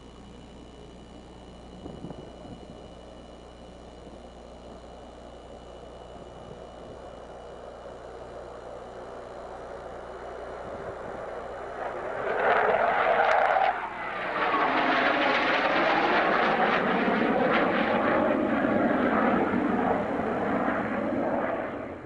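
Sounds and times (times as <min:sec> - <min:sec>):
fighter jet passing: 0:09.8 - 0:22.0.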